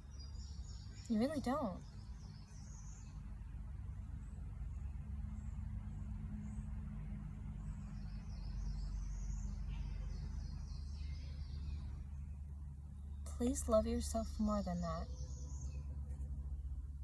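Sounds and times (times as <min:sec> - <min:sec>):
birds chirping: 0:00.0 - 0:03.4, 0:07.5 - 0:16.2
steady low hum: 0:00.0 - 0:17.0.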